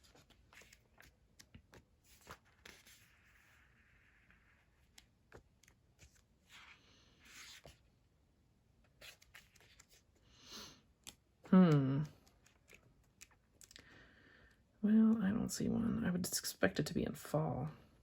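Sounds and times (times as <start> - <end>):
pages turning rustle: 0.0 - 7.9, 8.8 - 10.3.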